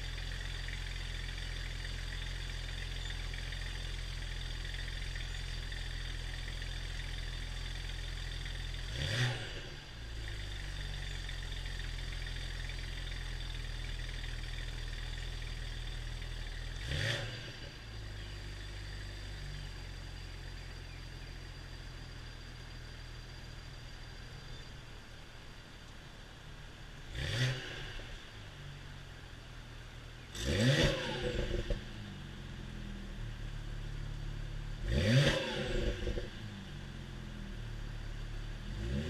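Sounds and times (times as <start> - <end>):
car engine revving: 0.0 - 19.6, 27.0 - 28.2, 30.3 - 32.8, 33.5 - 39.0
car engine idling: 0.0 - 39.0.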